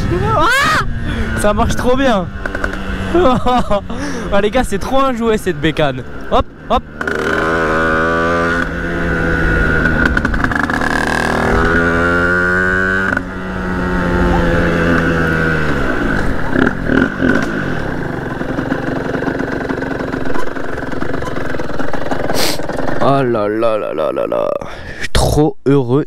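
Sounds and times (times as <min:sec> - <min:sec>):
motorcycle engine revving: 0:00.0 - 0:23.8
engine knocks: 0:16.2 - 0:23.2.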